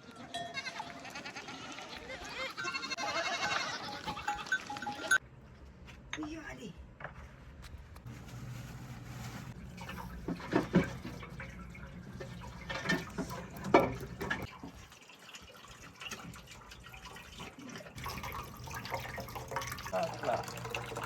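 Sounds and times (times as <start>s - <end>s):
water pouring and splashing: 8.2s - 21.0s.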